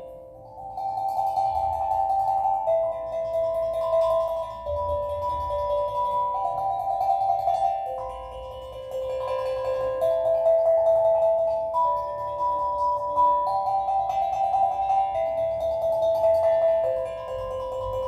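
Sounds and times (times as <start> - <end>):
steel drum melody: 0.0 - 18.0.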